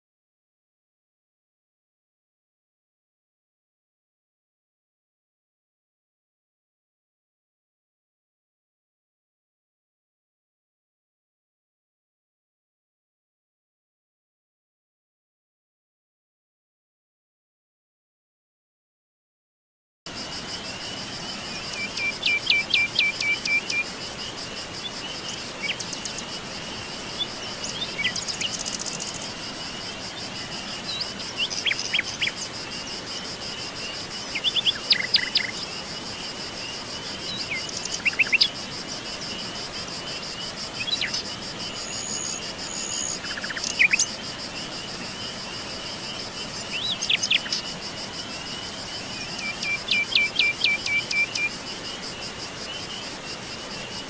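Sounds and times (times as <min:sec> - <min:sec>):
high-pitched insect trill: 0:20.1 - 0:54.0
songbirds singing: 0:20.1 - 0:54.0.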